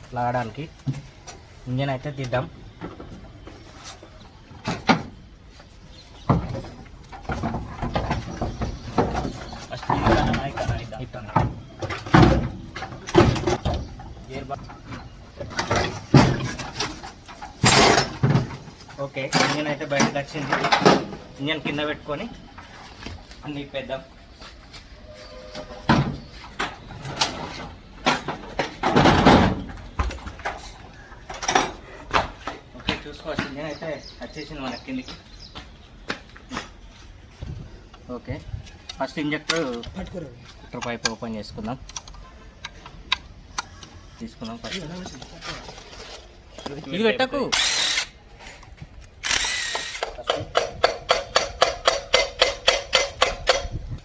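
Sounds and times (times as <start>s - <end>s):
metal knocks and clanks: 6.2s - 21.8s, 25.5s - 33.6s
rattling clatter of engine parts: 6.3s - 21.8s.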